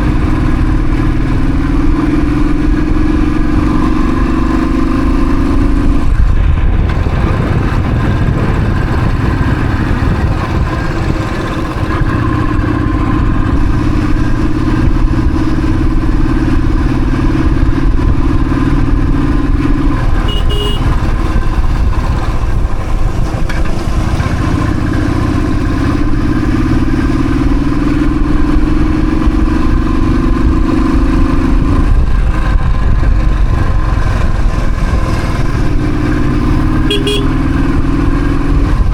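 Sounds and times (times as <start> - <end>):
motorcycle engine running: 0.0 - 38.9
wind rumble on microphone: 0.0 - 38.9
short horn beep: 20.2 - 20.9, 36.9 - 37.4.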